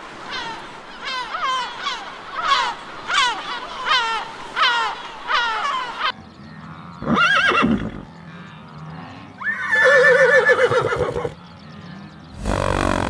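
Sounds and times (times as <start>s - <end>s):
zebra calling: 12.3s - 13.0s.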